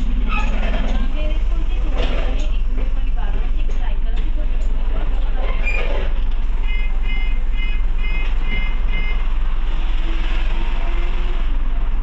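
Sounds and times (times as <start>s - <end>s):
bus engine drone: 0.0s - 12.0s
short electronic beeps: 6.6s - 9.2s.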